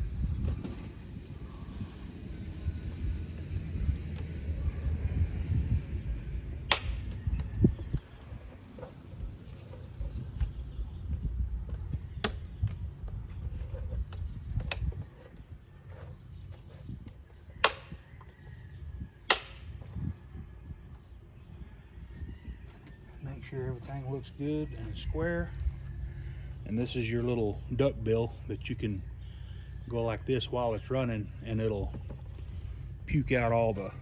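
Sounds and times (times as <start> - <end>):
low rumble: 0.0 - 8.3.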